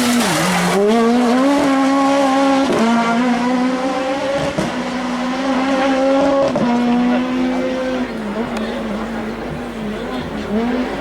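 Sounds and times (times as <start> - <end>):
rally car engine at high revs: 0.0 - 11.0.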